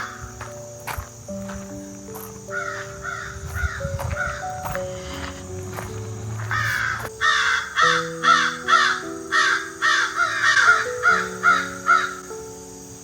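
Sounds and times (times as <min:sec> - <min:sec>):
soft background music: 0:00.0 - 0:13.0
bird harsh calls: 0:02.5 - 0:12.2.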